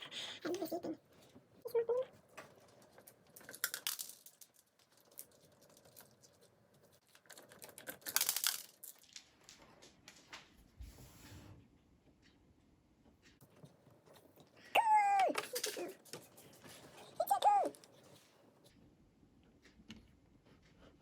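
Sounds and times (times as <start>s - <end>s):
crinkly rustling: 0.5s - 10.8s, 13.4s - 18.7s
plastic pieces clicking and rattling: 2.7s - 6.5s, 7.1s - 9.6s, 14.8s - 16.5s.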